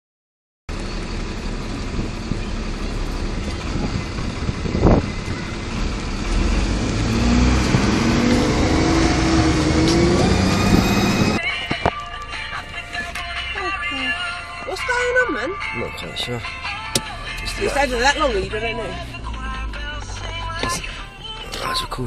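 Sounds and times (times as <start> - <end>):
vehicle engine running: 0.7 - 11.4, 16.4 - 22.0.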